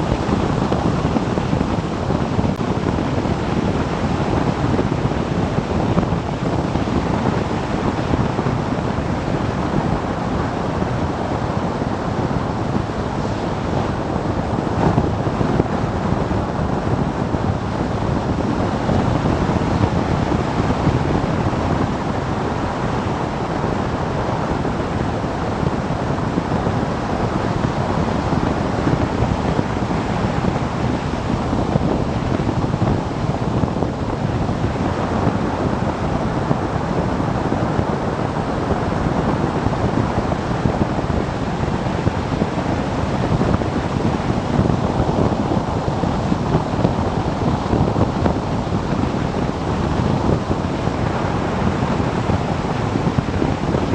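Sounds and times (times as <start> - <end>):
road noise: 0.0 - 53.9
wind buffeting microphone: 0.0 - 53.9.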